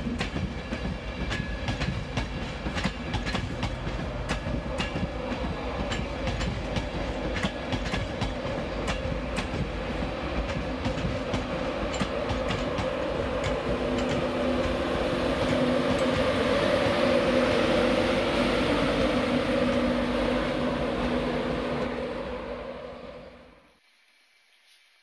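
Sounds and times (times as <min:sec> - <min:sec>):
wheels clicking over rail joints: 0:00.0 - 0:16.4
electric locomotive hum: 0:00.0 - 0:23.8
train rumbling past: 0:00.0 - 0:23.8.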